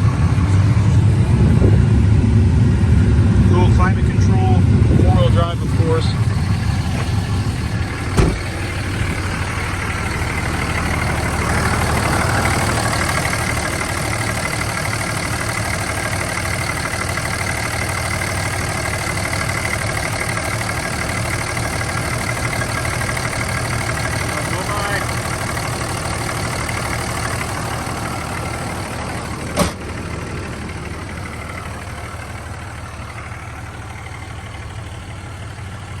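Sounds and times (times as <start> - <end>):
diesel engine idling: 0.0 - 36.0
short thump: 6.6 - 9.3.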